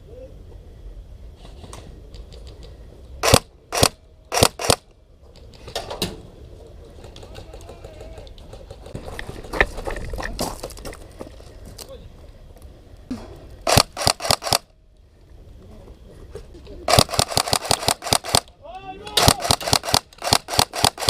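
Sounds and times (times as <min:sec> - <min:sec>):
airsoft gun shots: 0:13.7 - 0:14.6, 0:16.9 - 0:18.5, 0:19.2 - 0:21.0.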